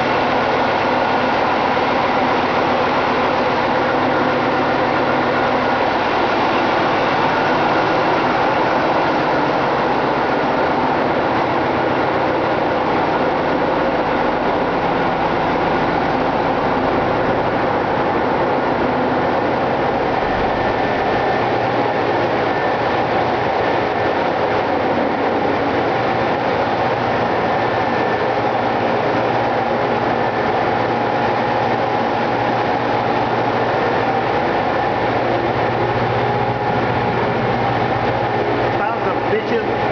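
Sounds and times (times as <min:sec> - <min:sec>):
diesel machinery running: 0:00.0 - 0:39.9.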